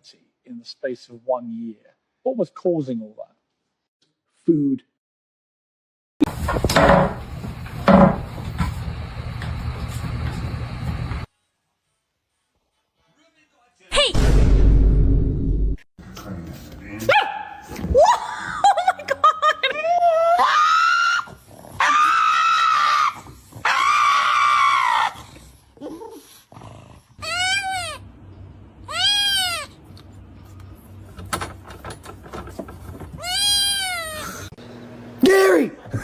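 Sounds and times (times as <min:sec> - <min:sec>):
animal crying out: 0:20.1 - 0:25.4, 0:27.2 - 0:28.1, 0:28.8 - 0:29.8, 0:33.2 - 0:34.5.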